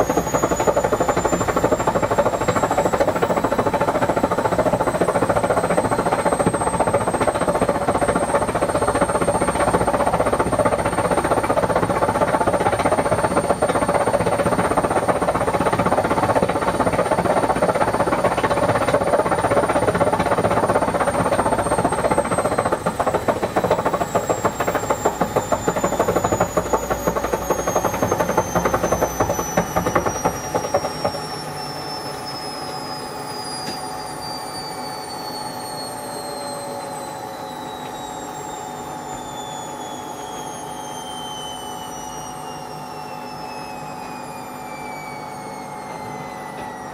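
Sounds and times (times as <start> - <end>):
washing machine spinning: 0.0 - 34.0.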